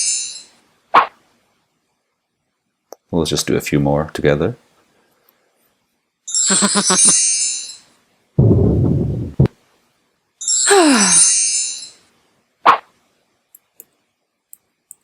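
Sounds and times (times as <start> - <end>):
bright chiming effect: 6.3 - 7.9.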